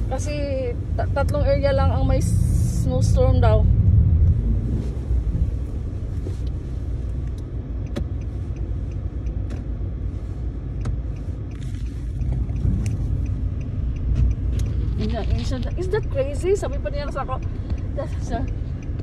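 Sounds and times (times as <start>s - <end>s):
low rumble inside car: 0.0s - 19.0s
faint clicks and ticks: 6.4s - 19.0s.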